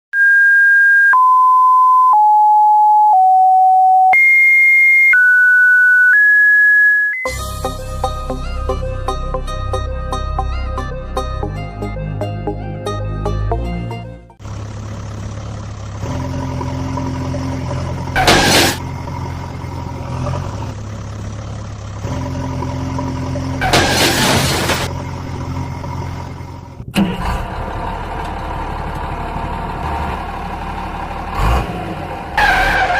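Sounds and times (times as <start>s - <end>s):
electronic tones: 0.2s - 7.4s
vehicle engine running: 14.4s - 32.6s.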